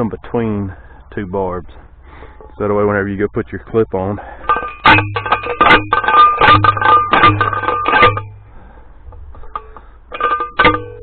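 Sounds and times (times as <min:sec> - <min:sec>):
post driver clanking on metal post: 0:04.2 - 0:08.4, 0:09.1 - 0:11.0.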